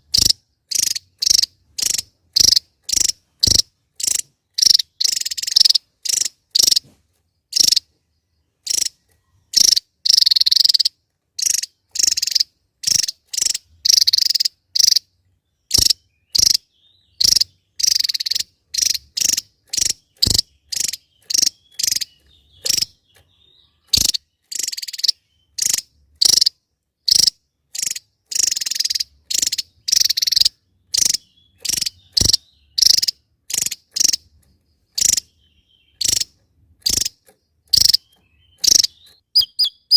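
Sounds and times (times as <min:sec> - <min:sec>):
bird giving harsh buzzy calls: 0:00.0 - 0:06.9, 0:07.5 - 0:07.9, 0:08.6 - 0:15.1, 0:15.7 - 0:23.0, 0:23.7 - 0:34.3, 0:34.9 - 0:39.9.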